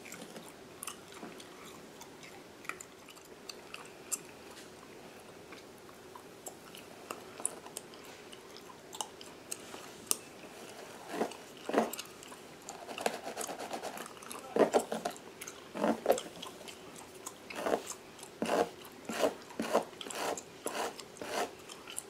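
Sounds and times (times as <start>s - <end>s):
gum chewing mouth clicks: 5.5s - 10.3s
comb scratching through hair: 12.8s - 15.0s, 17.6s - 21.5s.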